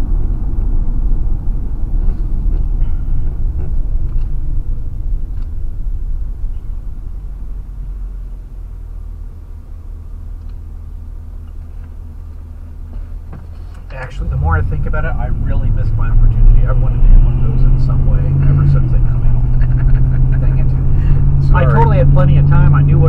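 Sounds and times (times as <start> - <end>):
road and engine rumble in car: 0.0 - 23.0.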